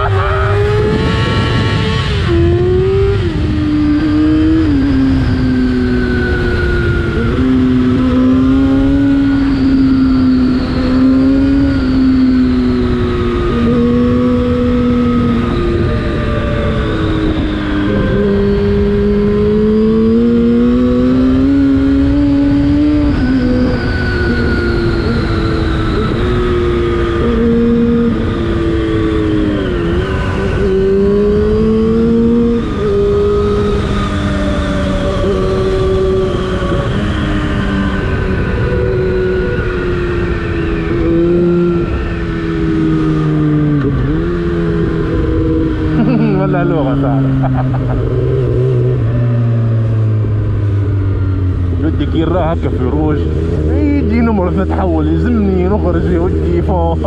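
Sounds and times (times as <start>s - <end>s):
wind rushing: 0.0s - 9.4s
motorcycle engine revving: 0.0s - 57.0s.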